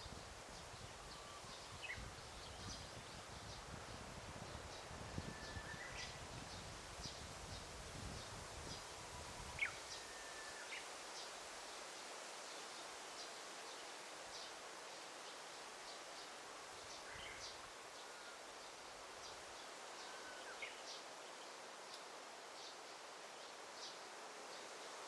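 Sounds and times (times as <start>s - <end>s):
steady background hiss: 0.0s - 25.0s
low whistled bird notes: 5.1s - 6.2s.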